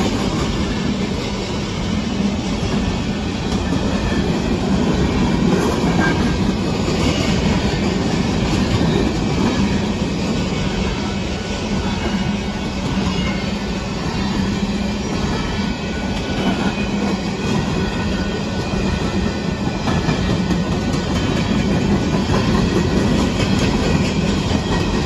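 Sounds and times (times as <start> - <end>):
steel wheels on rails: 0.0 - 25.0
wheels clicking over rail joints: 18.6 - 25.0.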